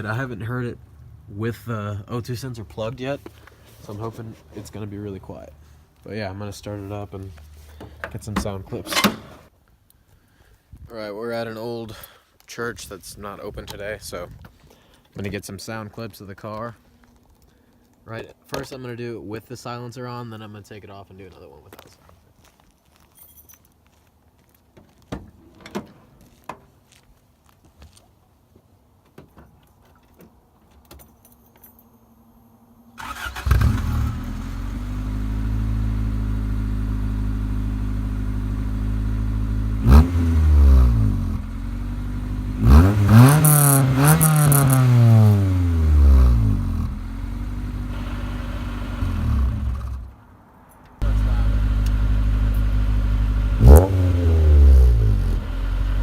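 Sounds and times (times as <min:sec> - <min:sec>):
car engine idling and revving: 0:33.0 - 0:50.2, 0:51.0 - 0:56.0.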